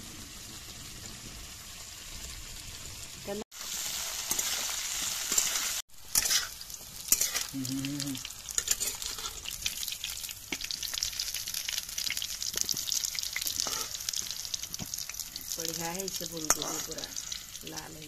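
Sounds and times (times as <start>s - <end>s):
vegetables sizzling in hot oil: 0.0s - 18.0s
metal spatula scraping pan: 5.3s - 7.5s, 8.6s - 9.5s, 13.4s - 14.0s, 16.3s - 17.6s.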